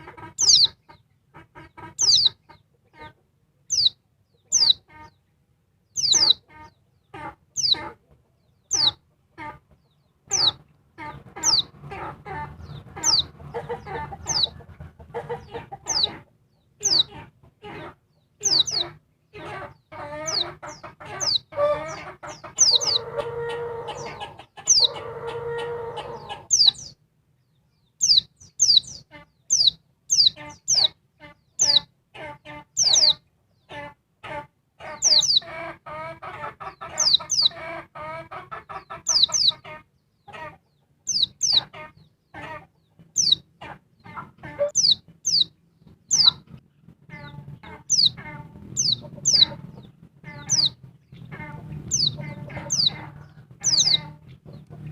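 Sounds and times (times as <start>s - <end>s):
lower drawn-out bird calls: 0.0s - 1.0s, 1.9s - 2.5s, 5.9s - 8.0s, 10.3s - 14.6s, 17.8s - 27.0s, 44.5s - 46.5s, 47.2s - 54.9s.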